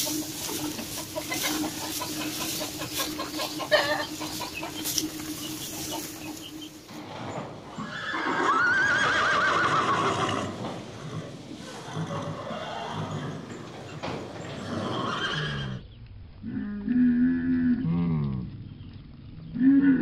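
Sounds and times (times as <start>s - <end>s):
cattle munching dry straw: 0.0s - 8.0s
horse whinnying: 7.7s - 13.5s, 14.5s - 15.8s.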